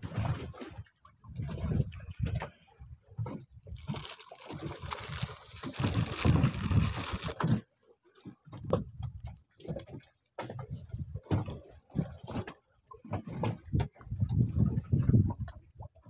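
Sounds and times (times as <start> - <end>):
water splashing against boat: 0.0 - 16.0
wind buffeting microphone: 4.8 - 7.4, 13.5 - 15.9.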